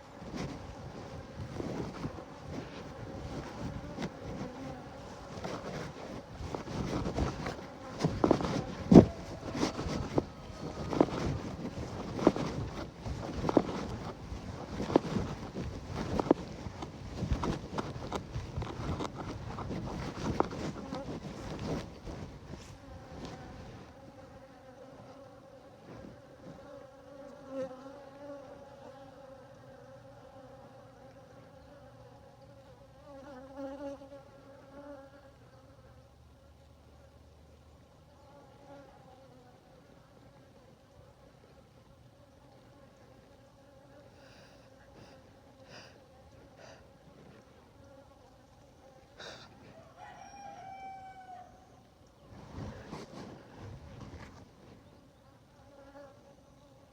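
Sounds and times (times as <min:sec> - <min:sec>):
honeybees buzzing: 0:00.0 - 0:29.0
rooster crowing: 0:49.6 - 0:51.7.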